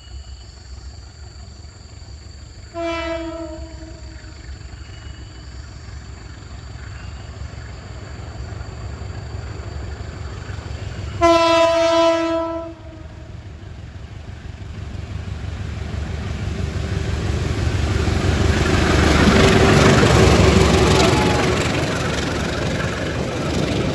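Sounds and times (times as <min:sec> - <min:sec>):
train rumble: 0:00.0 - 0:23.9
diesel locomotive horn blast: 0:02.7 - 0:05.2, 0:11.2 - 0:13.4.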